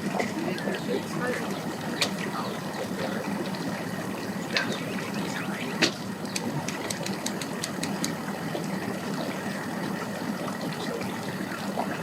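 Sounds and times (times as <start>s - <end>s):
high ticks: 5.8s - 8.2s.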